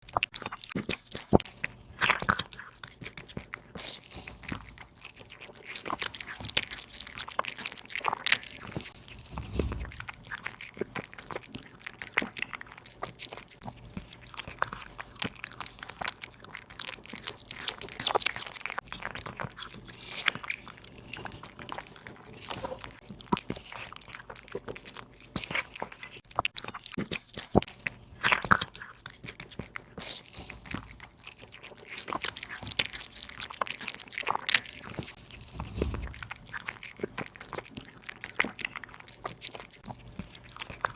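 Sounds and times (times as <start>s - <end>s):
cat crunching food: 0.0s - 40.9s.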